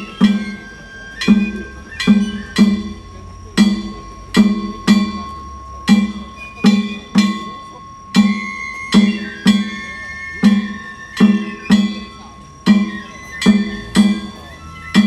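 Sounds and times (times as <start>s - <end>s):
ringing gongs: 0.0s - 15.0s
large taiko drum beats: 1.2s - 7.5s.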